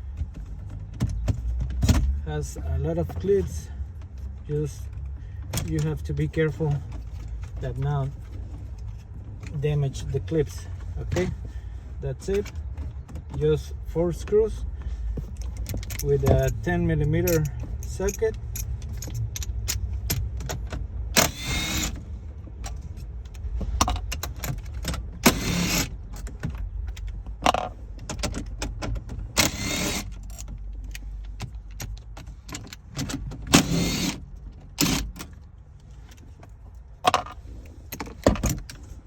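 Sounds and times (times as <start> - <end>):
metallic rattles of screws: 15.4 - 22.0, 23.8 - 35.4
power driver whirring: 21.2 - 22.0, 25.3 - 25.9, 29.4 - 30.1, 33.6 - 34.2.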